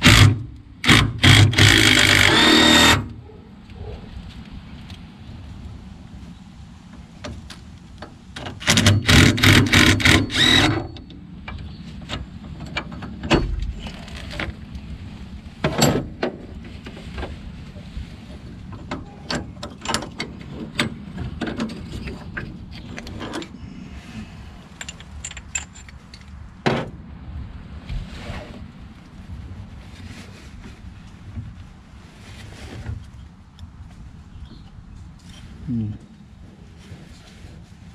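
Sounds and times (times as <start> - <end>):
metal clinks and knocks: 24.7 - 26.3.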